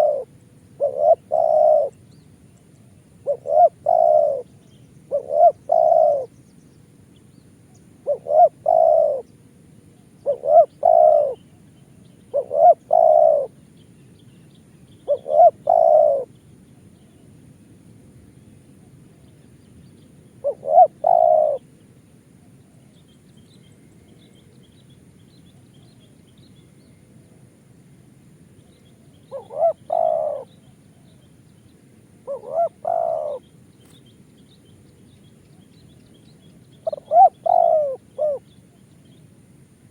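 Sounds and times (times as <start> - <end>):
dove cooing: 0.0 - 2.0, 2.9 - 6.3, 8.0 - 9.3, 10.2 - 11.6, 12.3 - 13.6, 15.1 - 16.3, 20.4 - 21.7, 29.2 - 31.2, 32.2 - 33.5, 36.8 - 38.6
small birds chirping: 28.6 - 39.4.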